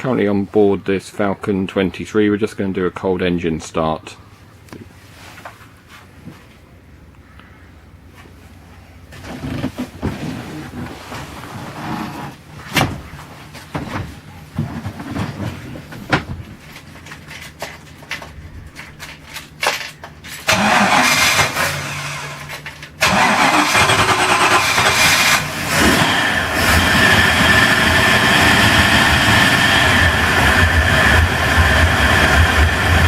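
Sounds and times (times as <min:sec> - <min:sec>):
boat engine cranking and running: 0:15.3 - 0:33.0.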